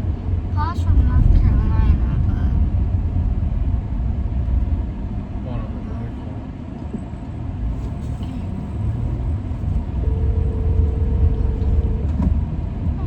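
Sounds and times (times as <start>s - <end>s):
car road and engine rumble: 0.0s - 13.0s
steady tone: 9.9s - 12.2s.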